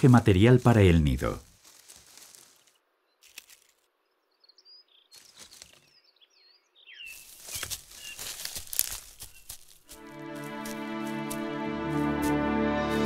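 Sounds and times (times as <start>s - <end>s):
dry twigs rustling and crackling: 0.0s - 4.0s, 5.1s - 6.0s, 7.0s - 12.1s
small birds chirping: 1.3s - 10.0s.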